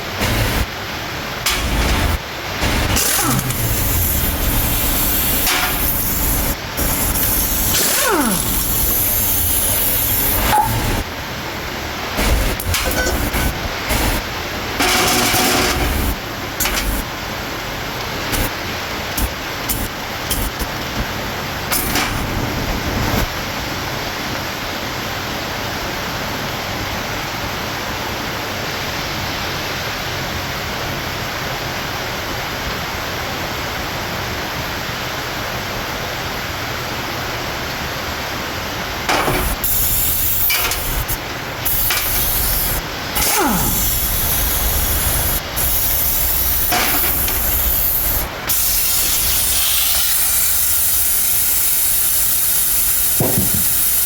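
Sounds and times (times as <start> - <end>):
spraying hiss: 1.5 - 11.1, 12.2 - 17.2, 18.0 - 23.3, 39.1 - 54.0.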